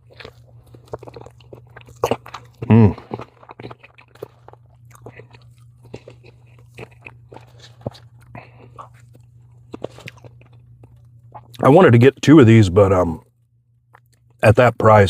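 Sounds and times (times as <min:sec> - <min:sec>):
person chewing and crunching food: 0:00.0 - 0:12.3, 0:13.2 - 0:14.6
person humming: 0:02.6 - 0:03.2.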